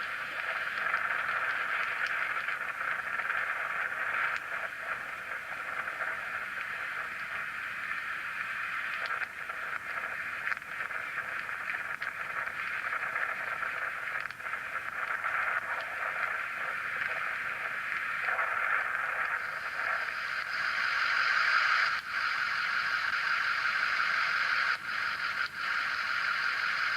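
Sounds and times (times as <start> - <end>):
faint crackles: 0.0 - 26.9
radio static hiss: 0.0 - 26.9.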